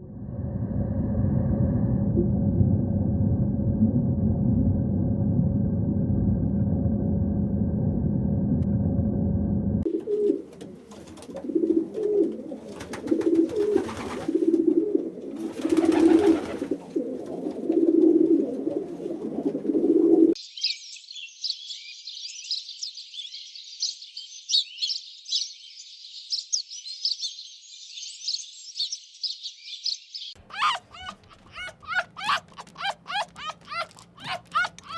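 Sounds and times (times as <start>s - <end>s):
bird cooing: 9.9s - 20.4s, 30.5s - 34.9s.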